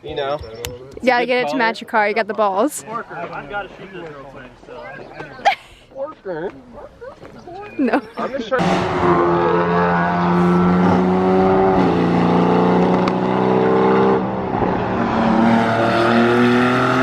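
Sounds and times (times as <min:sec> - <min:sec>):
car engine under load: 0:08.6 - 0:17.0.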